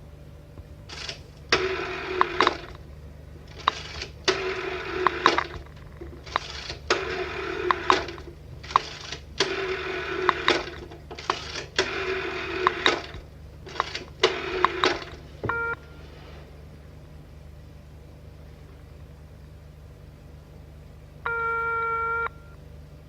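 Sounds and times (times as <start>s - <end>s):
brief beep: 21.3s - 22.6s
telephone bell ringing: 21.3s - 22.6s.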